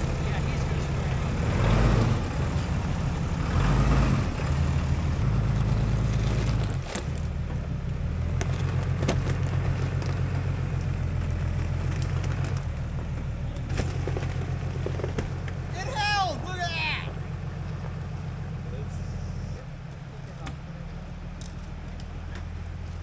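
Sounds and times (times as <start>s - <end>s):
vehicle engine at low revs: 0.0s - 23.0s
sharp clicks and crackles: 8.4s - 15.6s.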